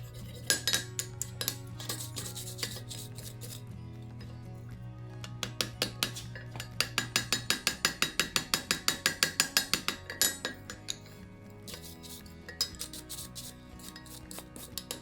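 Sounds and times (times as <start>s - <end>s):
hammer striking iron on anvil: 5.3s - 11.1s.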